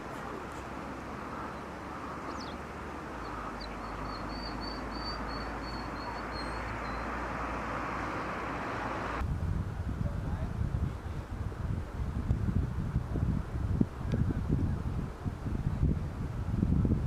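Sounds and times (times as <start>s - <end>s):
songbird trill: 1.2s - 7.2s.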